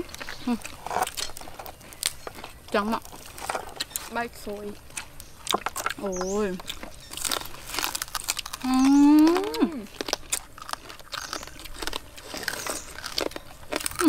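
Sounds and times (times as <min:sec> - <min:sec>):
people chewing crunchy food: 0:00.0 - 0:14.0
woman humming in appreciation: 0:08.6 - 0:09.9.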